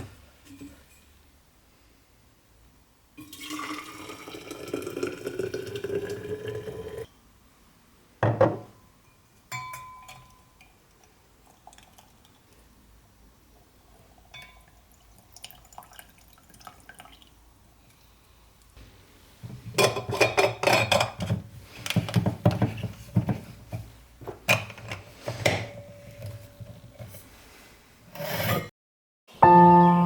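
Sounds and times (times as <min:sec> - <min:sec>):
dishes and utensils clattering: 0:19.6 - 0:27.2.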